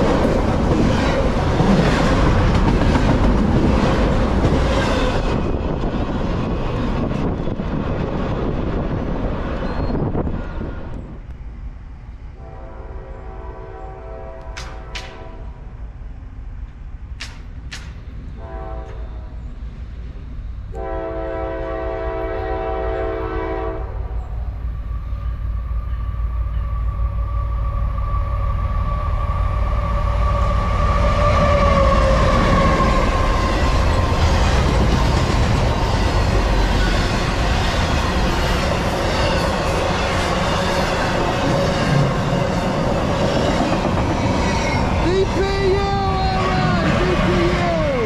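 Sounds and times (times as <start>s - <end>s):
freight cars rumbling and clattering: 0.0s - 11.8s, 31.2s - 48.0s
locomotive horn: 12.4s - 15.6s, 18.4s - 19.4s, 20.7s - 24.2s.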